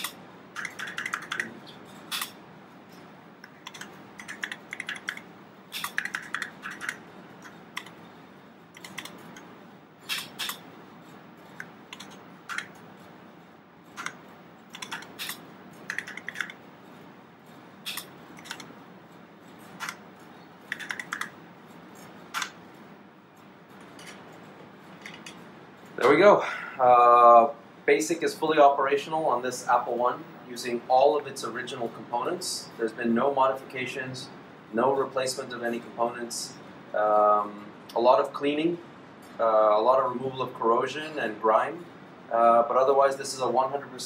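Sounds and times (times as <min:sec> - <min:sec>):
keyboard keys clacking: 0:00.0 - 0:01.6, 0:03.4 - 0:05.2, 0:05.8 - 0:08.0, 0:13.9 - 0:16.6, 0:19.6 - 0:21.4.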